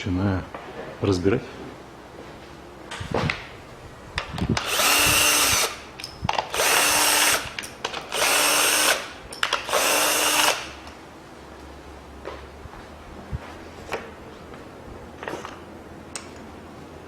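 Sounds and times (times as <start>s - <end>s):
cordless power driver bursts: 4.6s - 5.8s, 6.5s - 10.8s.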